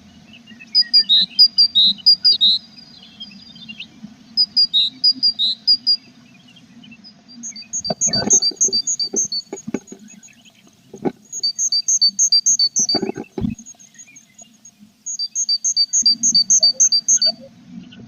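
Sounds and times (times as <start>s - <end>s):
tit calling: 7.4s - 10.2s, 10.9s - 13.7s, 15.1s - 17.4s
soft knocks and scrapes: 7.9s - 11.2s, 12.9s - 13.6s.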